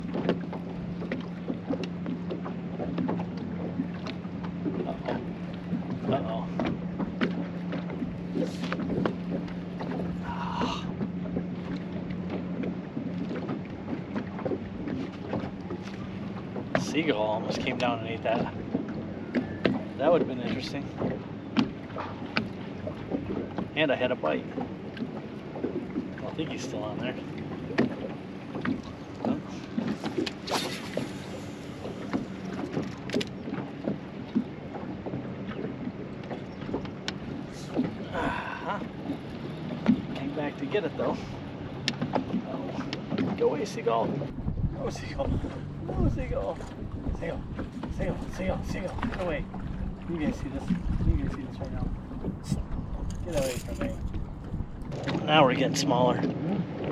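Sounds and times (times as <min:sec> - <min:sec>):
small waves lapping: 0:00.0 - 0:56.9
wind on microphone: 0:44.1 - 0:56.9.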